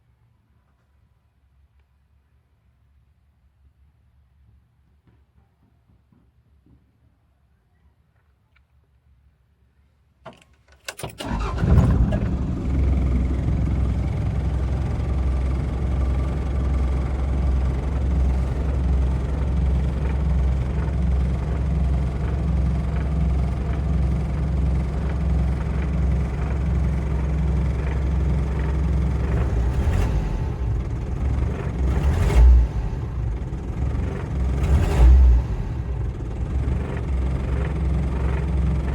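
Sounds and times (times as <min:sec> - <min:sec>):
engine starter cranking: 0:10.3 - 0:13.2
diesel engine idling: 0:11.2 - 0:38.9.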